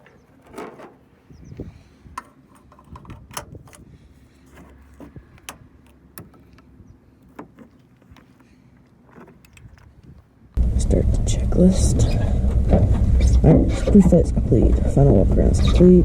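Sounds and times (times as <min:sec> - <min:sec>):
light clicks and knocks of handling: 0:02.1 - 0:10.3.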